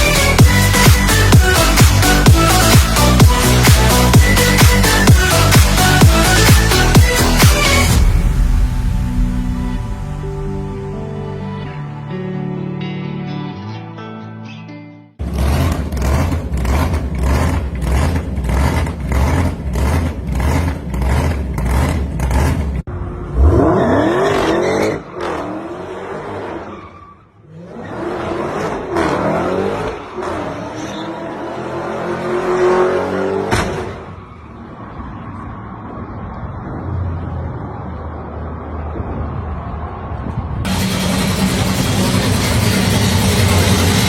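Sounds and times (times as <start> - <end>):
car engine revving: 0.0 - 11.7, 15.2 - 26.8, 27.5 - 34.1, 40.7 - 44.0
bass-heavy music beat: 0.0 - 12.4, 40.7 - 44.0.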